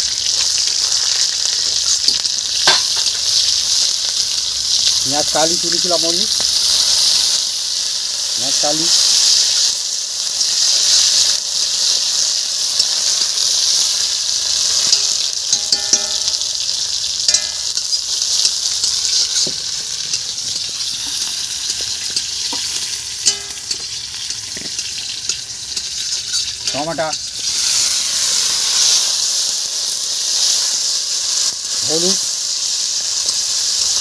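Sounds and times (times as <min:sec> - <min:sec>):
onions sizzling in hot oil: 0:00.0 - 0:34.0
spatula clicking and scraping pan: 0:14.5 - 0:16.7, 0:17.3 - 0:27.8.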